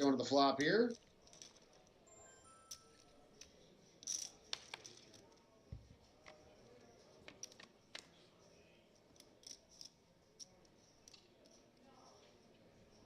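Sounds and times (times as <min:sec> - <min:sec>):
cards and chips clicking: 0:02.6 - 0:05.4, 0:07.2 - 0:08.2.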